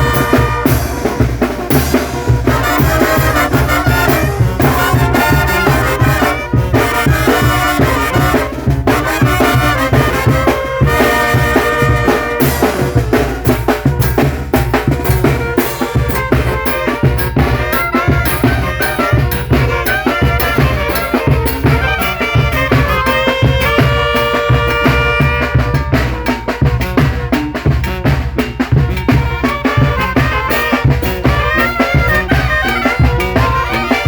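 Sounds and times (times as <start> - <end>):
brass band playing: 0.0 - 34.0
horns playing a tune: 0.0 - 34.0
steady drum beat: 0.0 - 34.0.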